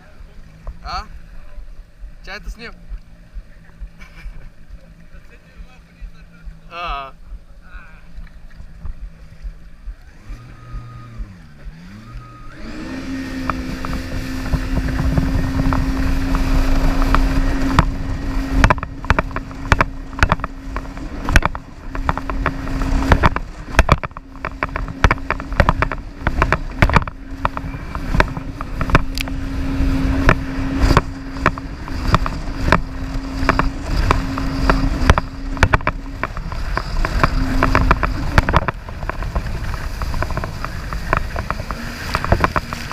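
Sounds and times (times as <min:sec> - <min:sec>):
jet ski engine: 0:00.0 - 0:42.9
sharp knocks and thumps: 0:13.4 - 0:42.9.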